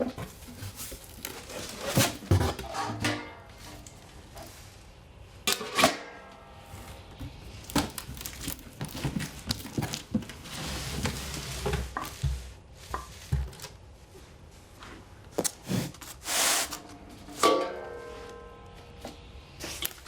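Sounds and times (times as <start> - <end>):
wrapping crinkling and tearing: 0.6 - 2.3, 7.5 - 11.5.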